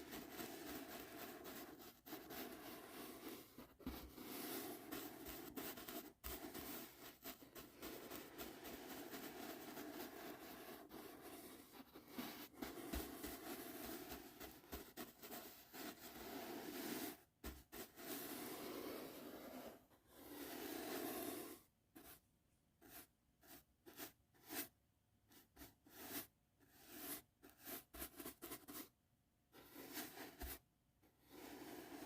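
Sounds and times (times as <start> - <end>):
brush stroking microphone: 0.0 - 22.2, 29.6 - 30.6.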